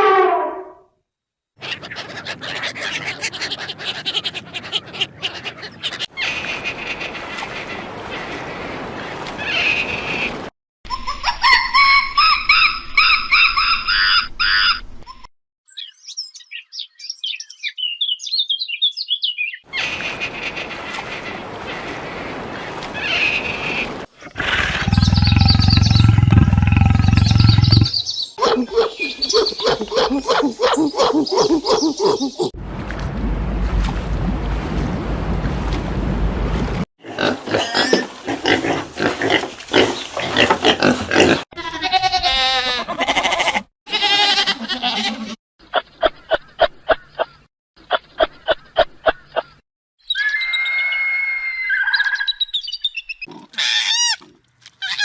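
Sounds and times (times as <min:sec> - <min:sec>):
animal pitched calls: 0:01.6 - 0:06.1, 0:24.2 - 0:32.5
animal deep roar: 0:24.2 - 0:28.0.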